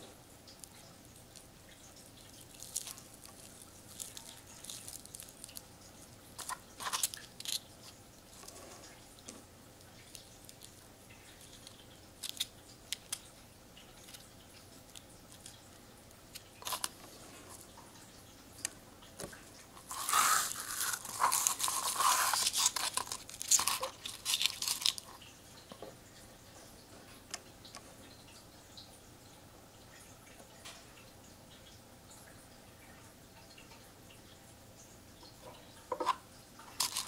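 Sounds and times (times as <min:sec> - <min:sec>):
paper nest crunching and tearing: 0:19.8 - 0:25.0.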